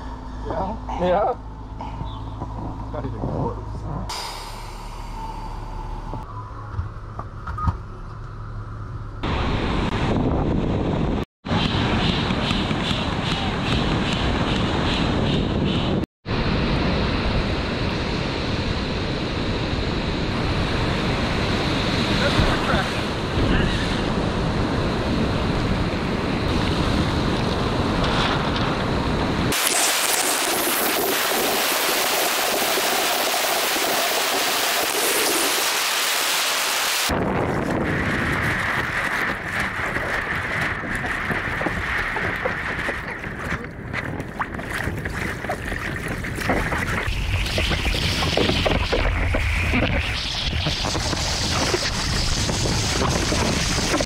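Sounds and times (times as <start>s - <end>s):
wind rumbling on microphone: 5.0s - 36.1s, 36.8s - 54.0s
surf breaking on a beach: 16.3s - 54.0s
water washing along hull: 16.4s - 54.0s.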